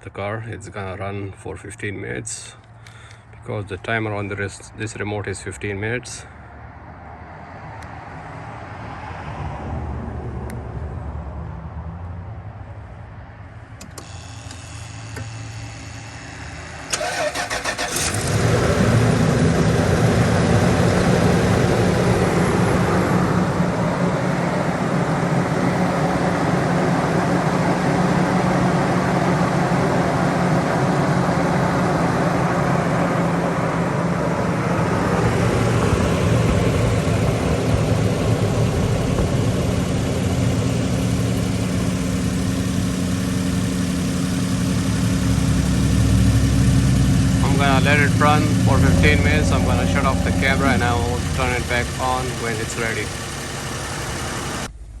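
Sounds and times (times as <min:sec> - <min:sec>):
engine idling: 0:13.8 - 0:54.8
starter cranking: 0:16.9 - 0:18.4
low hum: 0:18.0 - 0:55.0.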